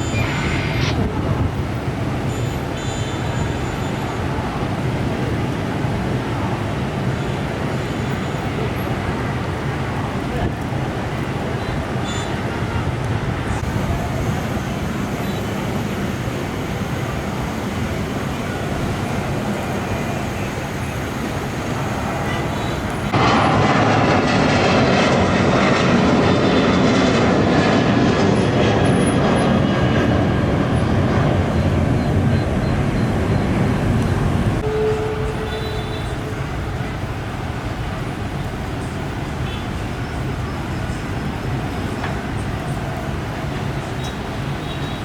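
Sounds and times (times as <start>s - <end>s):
airliner engine rushing: 0.0s - 45.0s.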